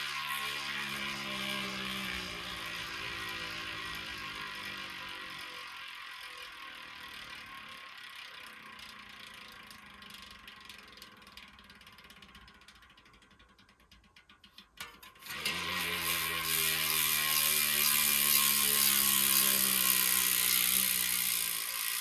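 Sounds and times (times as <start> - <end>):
bicycle freehub buzzing: 0.0 - 22.0
freehub ticking: 0.0 - 22.0
short rattle: 8.5 - 22.0.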